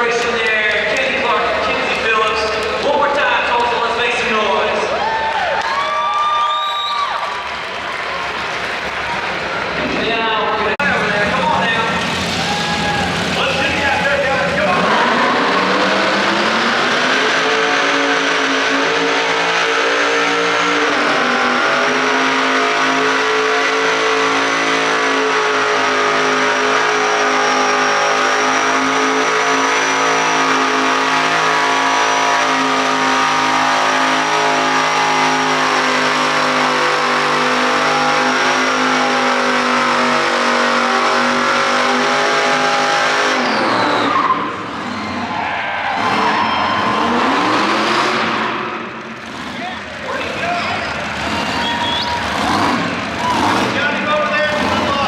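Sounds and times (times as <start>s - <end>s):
mini bike engines revving high: 11.4s - 55.0s.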